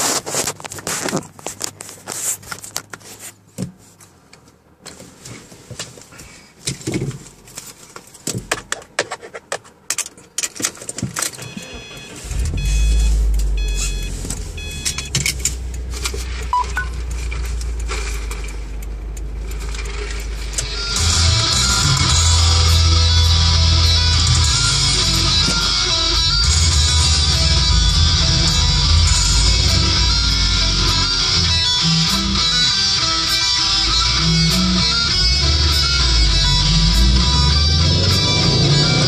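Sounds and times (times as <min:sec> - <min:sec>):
car engine starting and idling: 0:11.2 - 0:39.0
short electronic chimes: 0:11.4 - 0:15.3, 0:16.5 - 0:17.0.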